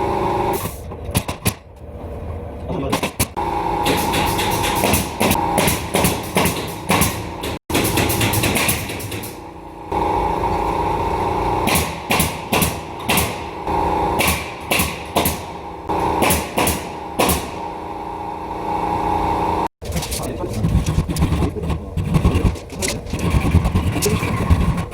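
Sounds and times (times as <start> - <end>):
nail gun firing: 2.9 - 9.4, 11.6 - 13.6, 14.2 - 17.7.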